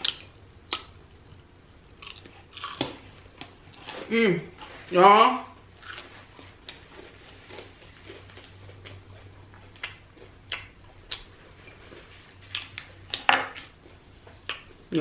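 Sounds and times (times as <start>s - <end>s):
chewing mouth clicks and smacks: 8.1s - 11.3s.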